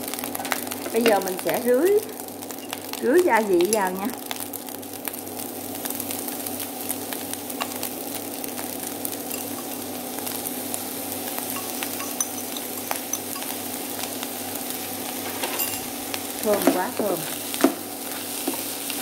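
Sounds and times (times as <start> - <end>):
fried rice sizzling: 0.0 - 19.0
small crackles: 0.0 - 19.0
steady low hum: 7.1 - 18.1.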